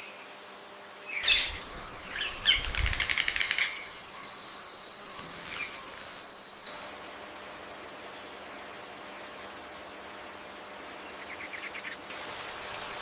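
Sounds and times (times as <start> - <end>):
faint high-pitched hum: 0.0 - 13.0
birds chirping and chattering: 1.1 - 8.2.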